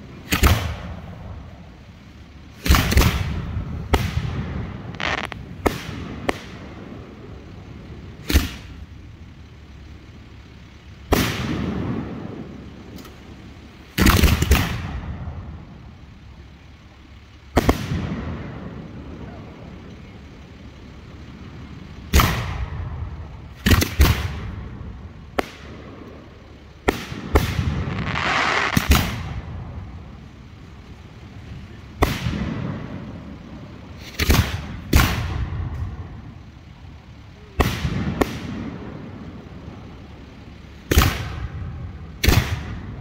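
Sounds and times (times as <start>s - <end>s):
firework hissing: 2.5s - 9.0s, 20.4s - 43.0s.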